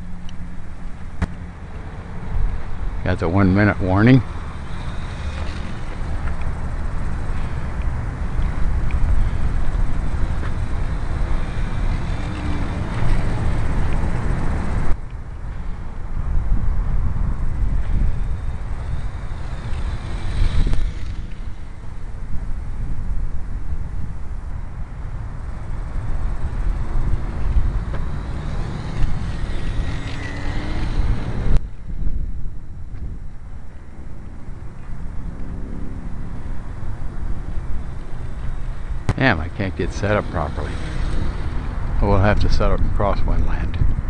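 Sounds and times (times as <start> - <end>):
gusty wind buffeting microphone: 0.0 - 44.0
model airplane motor whine: 2.4 - 15.0, 16.4 - 24.0, 25.2 - 31.6, 35.2 - 42.6.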